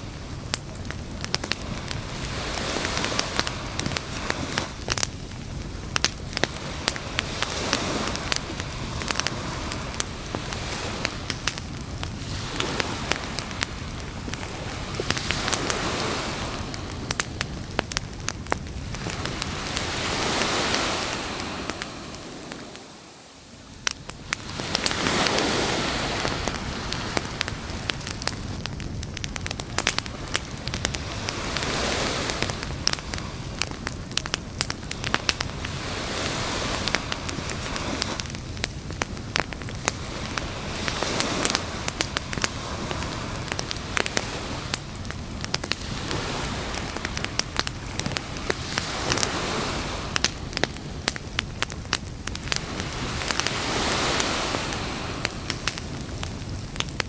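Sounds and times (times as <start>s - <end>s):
campfire crackling and popping: 0.0s - 57.0s
surf: 0.0s - 57.0s.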